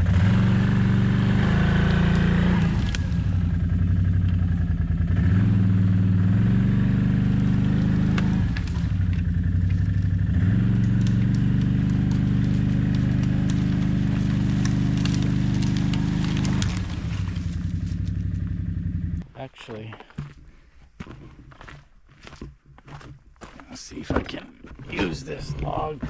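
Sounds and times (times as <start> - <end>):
vehicle engine revving: 0.0 - 19.2.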